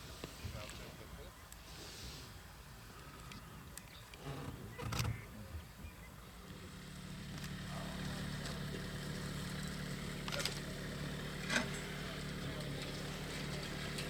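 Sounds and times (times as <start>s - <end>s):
vehicle engine running: 6.2s - 14.0s.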